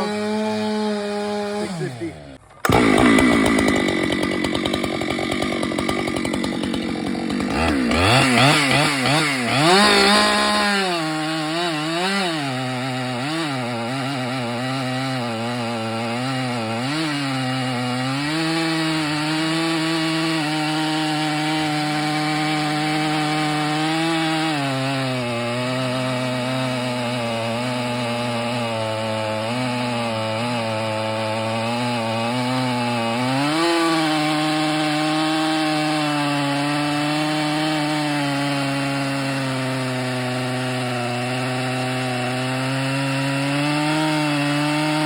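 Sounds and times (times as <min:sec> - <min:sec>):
chainsaw cutting through trunk: 0:00.0 - 0:45.0.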